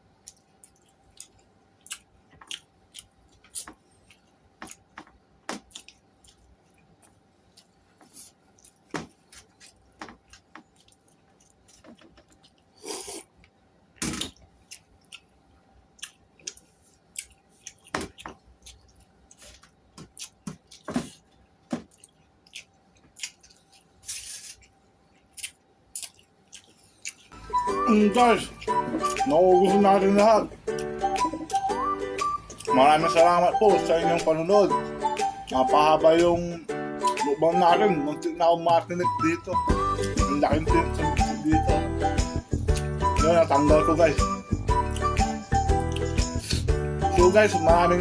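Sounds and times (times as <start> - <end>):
lip smacks and mouth clicks: 0.2 - 13.6, 16.0 - 21.0, 21.9 - 27.4, 42.5 - 42.9, 44.7 - 46.7
person chewing: 0.2 - 27.6, 28.5 - 29.7, 30.6 - 32.8, 41.0 - 43.0, 44.5 - 46.8.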